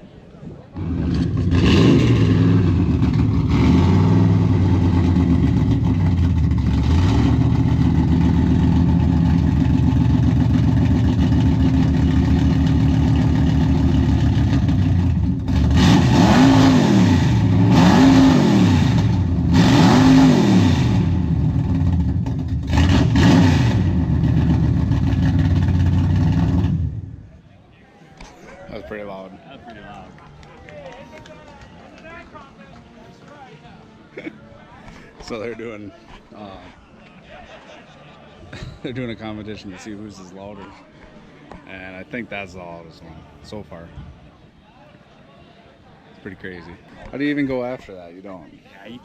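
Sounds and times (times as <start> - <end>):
loud car engine idling and revving: 0.8 - 27.3.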